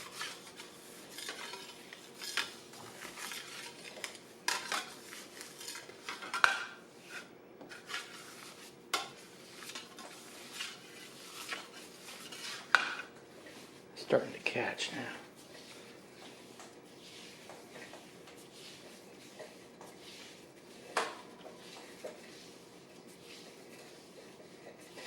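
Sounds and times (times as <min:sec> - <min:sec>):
dough scraper scraping countertop: 0:00.0 - 0:25.0.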